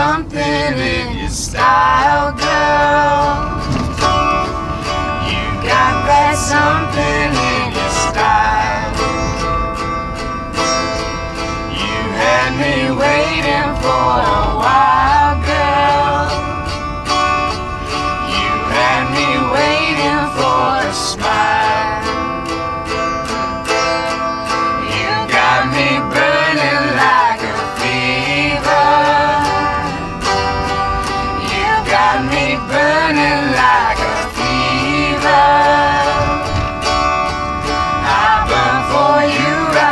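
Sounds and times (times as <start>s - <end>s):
person singing: 0.0s - 4.2s, 4.8s - 9.5s, 11.6s - 16.6s, 18.2s - 22.7s, 24.0s - 37.0s, 37.7s - 39.9s
strummed guitar: 0.0s - 39.9s.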